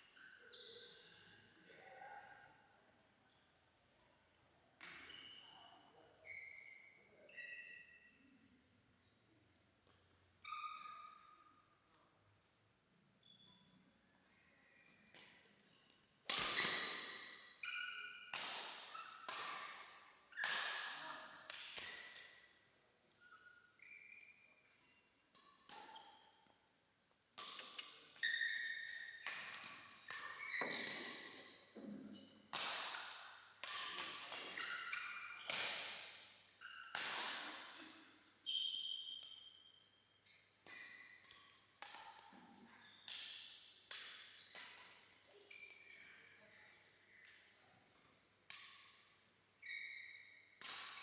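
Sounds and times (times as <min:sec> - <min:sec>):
sneaker squeaks on court floor: 0:04.9 - 0:05.6, 0:06.2 - 0:08.1, 0:15.7 - 0:21.0, 0:23.2 - 0:32.4, 0:33.1 - 0:41.6, 0:42.8 - 0:46.4, 0:48.6 - 0:51.0
racket hitting shuttlecock: 0:16.3 - 0:17.4, 0:18.3 - 0:22.3, 0:27.4 - 0:28.1, 0:29.1 - 0:31.5, 0:32.5 - 0:36.2, 0:36.9 - 0:38.1, 0:40.6 - 0:42.4, 0:43.1 - 0:44.9, 0:50.6 - 0:51.0.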